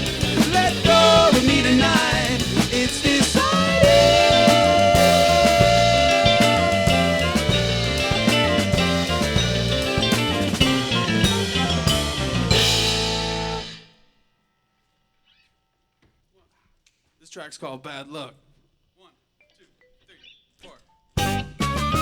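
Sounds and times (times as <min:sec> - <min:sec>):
live rock band playing: 0:00.0 - 0:13.9, 0:21.2 - 0:22.0
held guitar note bending upward: 0:03.6 - 0:13.8.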